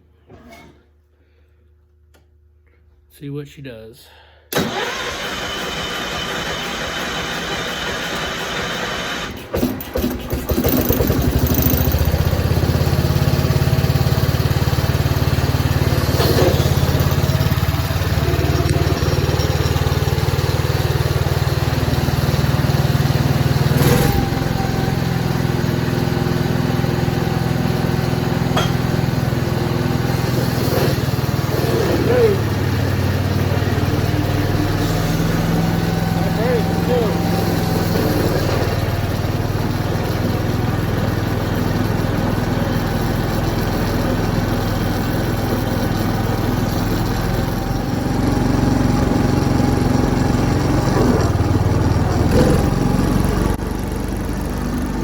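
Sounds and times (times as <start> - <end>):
engine starter cranking: 4.5 - 12.9, 16.1 - 21.7
tractor engine running: 4.6 - 55.0
sharp engine knock: 9.6 - 12.2.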